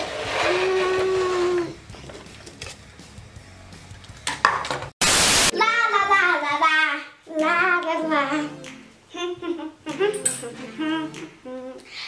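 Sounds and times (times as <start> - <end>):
person singing a melody: 7.3 - 12.0.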